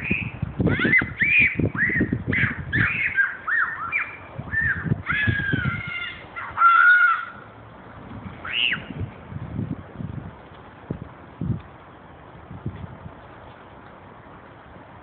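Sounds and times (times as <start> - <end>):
birds harsh cries: 0.0 - 7.6, 8.4 - 9.0.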